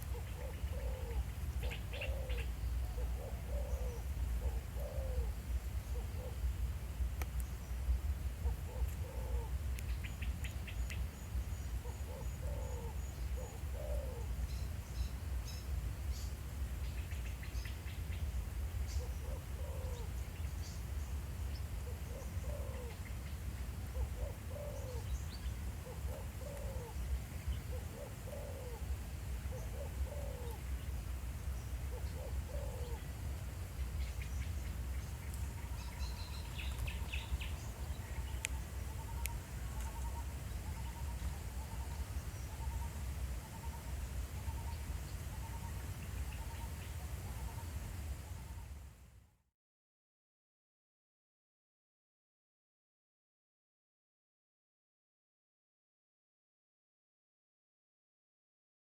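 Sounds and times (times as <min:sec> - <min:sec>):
dove cooing: 0:00.0 - 0:06.4, 0:08.4 - 0:09.6, 0:11.8 - 0:14.4, 0:18.9 - 0:20.2, 0:21.8 - 0:23.2, 0:23.8 - 0:30.8, 0:31.8 - 0:33.1, 0:35.5 - 0:48.6
small birds chirping: 0:33.8 - 0:42.9.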